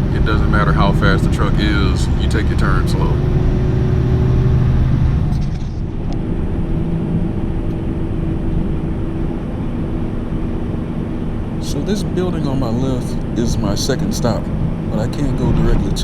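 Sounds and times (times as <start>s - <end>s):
truck diesel engine droning: 0.0s - 5.1s, 11.4s - 16.0s.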